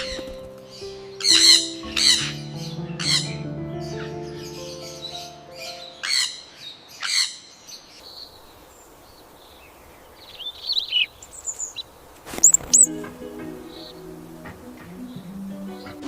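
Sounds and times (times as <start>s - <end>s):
birds squawking: 0.0s - 7.8s, 10.5s - 12.9s
sharp high bird calls: 0.0s - 8.3s, 12.4s - 12.9s
birds chirping: 0.0s - 16.0s.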